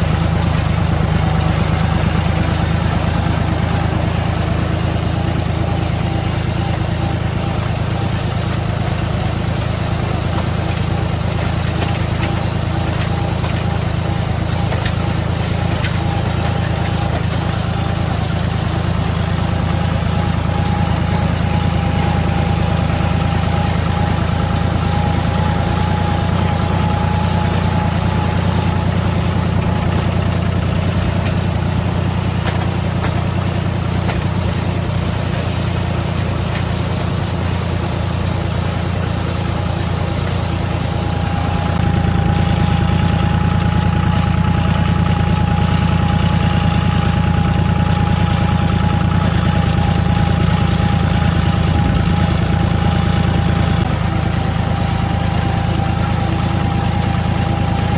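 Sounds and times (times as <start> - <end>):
thin steady whine: 0.0 - 41.8, 53.8 - 57.9
tractor engine running: 0.0 - 57.9.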